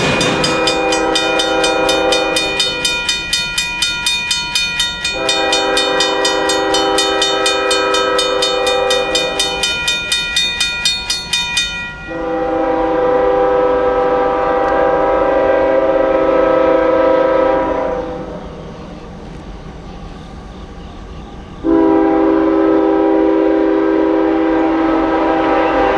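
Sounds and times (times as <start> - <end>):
locomotive air horn blasts: 0.0 - 3.0, 5.1 - 9.8, 12.1 - 18.4, 21.6 - 25.9
railroad crossing bell dinging: 0.0 - 14.9, 16.5 - 24.6.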